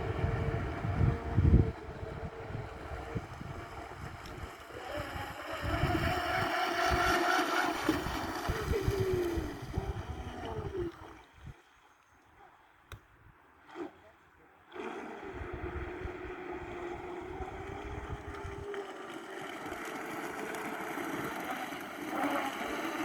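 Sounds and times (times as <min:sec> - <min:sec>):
model boat electric motors whining: 0:00.0 - 0:11.2, 0:14.7 - 0:23.0
wind on microphone: 0:00.0 - 0:11.6, 0:15.2 - 0:18.8.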